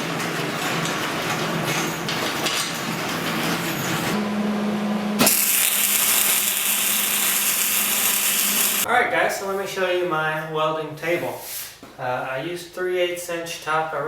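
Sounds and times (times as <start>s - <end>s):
power tool cutting steel: 5.2s - 8.9s.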